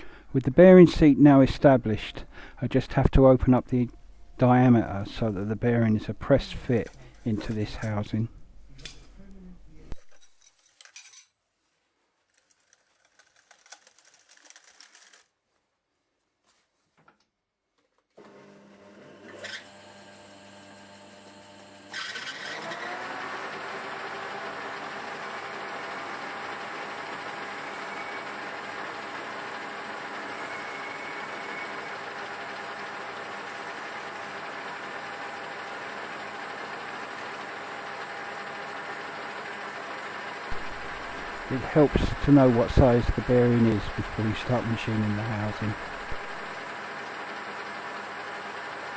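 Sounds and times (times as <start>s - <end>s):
metal lathe running: 18.4s - 48.9s.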